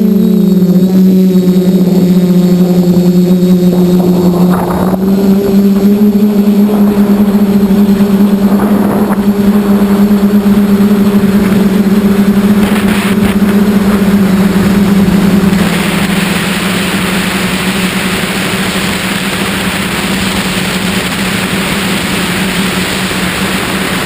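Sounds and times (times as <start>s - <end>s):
quadcopter propellers droning: 0.0s - 24.0s
wind noise rushes: 0.0s - 24.0s.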